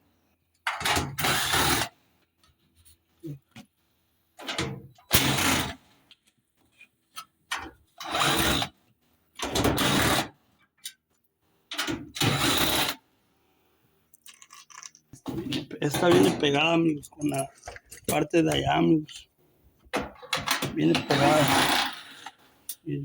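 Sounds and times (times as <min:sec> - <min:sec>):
power drill spinning: 0:01.2 - 0:01.8, 0:12.2 - 0:12.9, 0:20.8 - 0:22.4.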